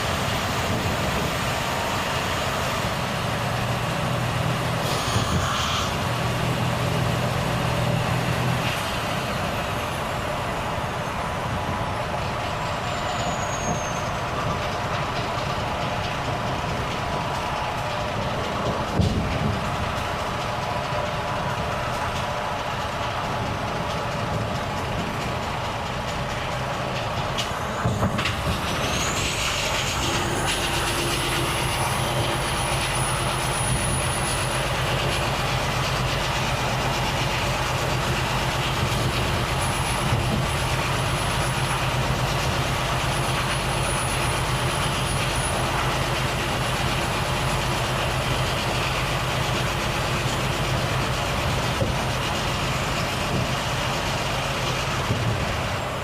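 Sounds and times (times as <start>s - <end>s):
truck diesel engine running: 0.0s - 56.0s
high turbo whistle: 4.8s - 6.1s.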